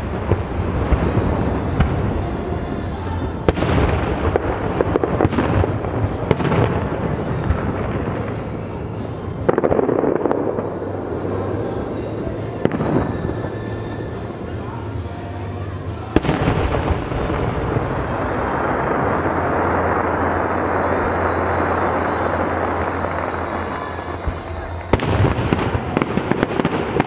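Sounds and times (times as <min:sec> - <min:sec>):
fireworks bangs: 0:00.0 - 0:27.0
fireworks crackling: 0:00.0 - 0:27.0.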